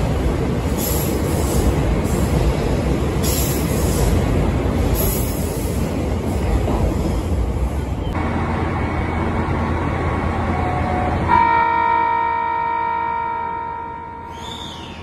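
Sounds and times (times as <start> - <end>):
diesel train passing: 0.0 - 15.0
idling train hum: 0.0 - 15.0
train horn: 10.5 - 14.4.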